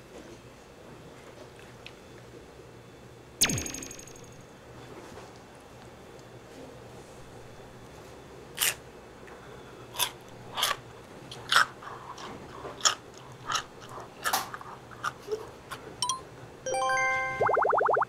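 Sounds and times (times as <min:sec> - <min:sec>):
crunchy food being chewed: 0:08.6 - 0:08.8, 0:09.9 - 0:15.8.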